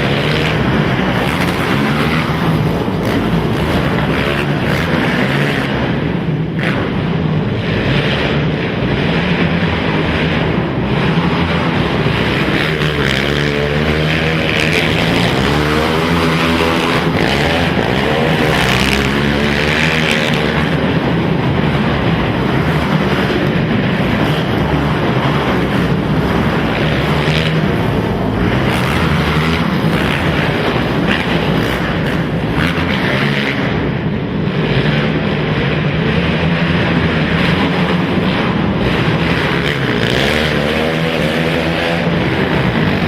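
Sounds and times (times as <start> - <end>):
quad engines revving: 0.0 - 43.0.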